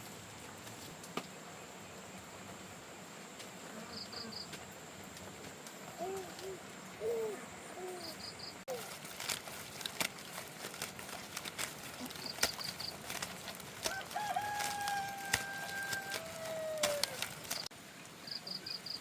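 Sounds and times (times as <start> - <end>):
small bird chirping: 5.9 - 10.6, 11.3 - 13.7
rooster crowing: 13.9 - 17.3.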